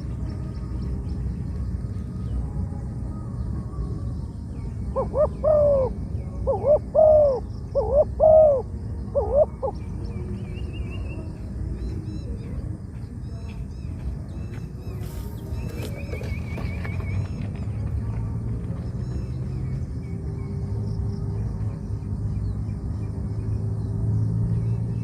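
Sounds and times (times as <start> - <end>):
small birds chirping: 0.0 - 25.0
dove cooing: 4.8 - 11.2.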